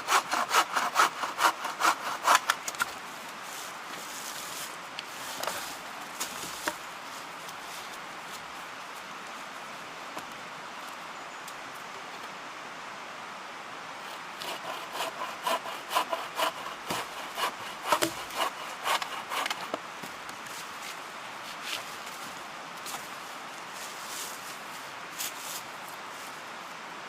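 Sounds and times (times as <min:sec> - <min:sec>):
wood being sawn by hand: 0:00.0 - 0:02.8, 0:14.0 - 0:19.8
steady background hiss: 0:00.0 - 0:27.0.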